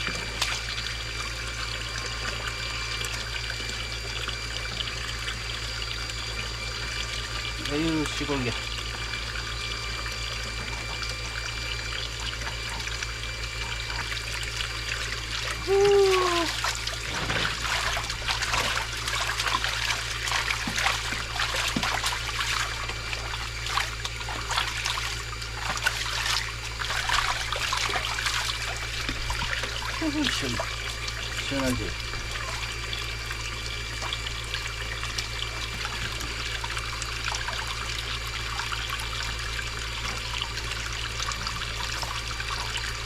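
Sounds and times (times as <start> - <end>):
water splashing over a dog: 15.2 - 32.8
dog whining: 15.6 - 16.6.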